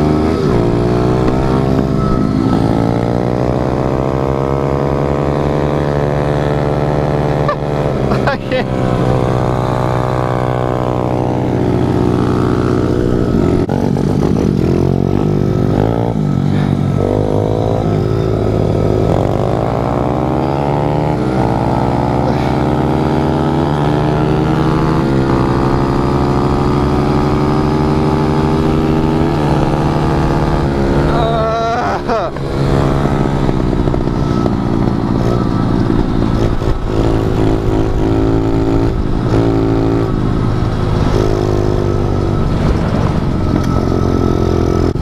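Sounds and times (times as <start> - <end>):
pit bike engine accelerating: 0.0 - 45.0.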